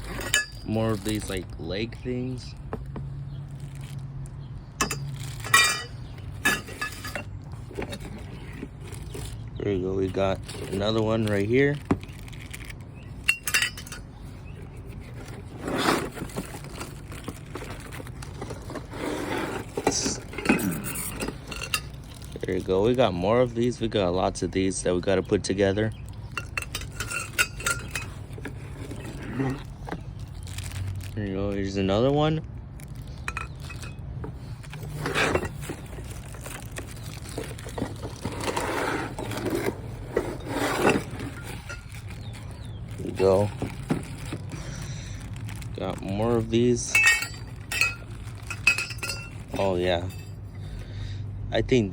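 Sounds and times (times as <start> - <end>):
metal frame parts clinking: 0.0 - 1.4, 4.8 - 9.4, 13.1 - 22.5, 26.3 - 29.6, 33.2 - 44.4, 45.8 - 50.5
rustling scrape: 0.0 - 1.4, 4.8 - 22.7, 26.3 - 31.2, 32.9 - 50.8.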